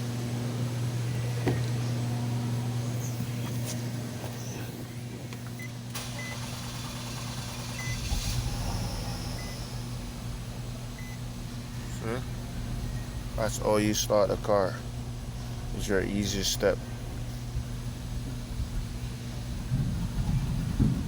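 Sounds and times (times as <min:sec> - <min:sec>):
car engine humming: 0:00.0 - 0:21.0
deep engine rumble: 0:00.0 - 0:21.0
short electronic beep: 0:09.1 - 0:09.7, 0:11.0 - 0:11.2.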